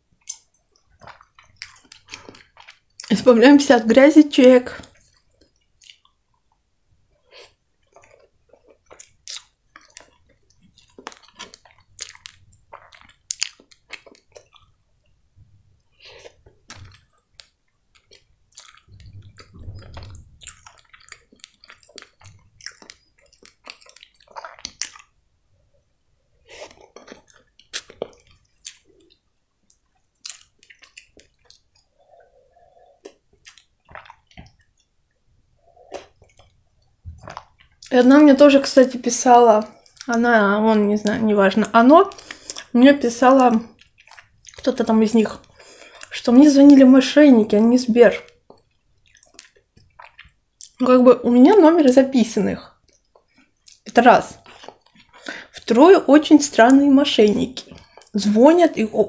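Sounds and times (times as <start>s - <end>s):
wet chewing mouth sounds: 0.2s - 3.1s, 7.2s - 14.8s, 15.8s - 25.1s, 26.4s - 38.0s, 42.0s - 42.7s, 43.4s - 46.8s, 48.1s - 50.8s, 52.7s - 55.6s, 57.6s - 58.2s.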